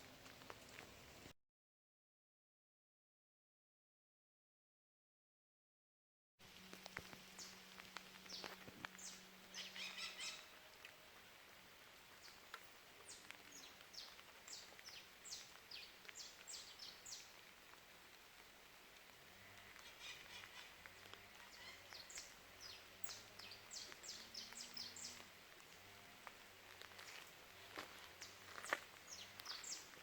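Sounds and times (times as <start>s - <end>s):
faint bird chirping: 8.2s - 10.9s, 19.3s - 26.2s, 27.6s - 30.0s.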